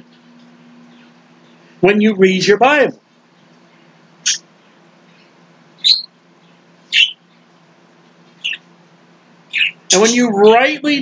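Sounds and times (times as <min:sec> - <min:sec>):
bird chirping: 0:03.3 - 0:07.5, 0:08.4 - 0:08.7, 0:09.5 - 0:10.2.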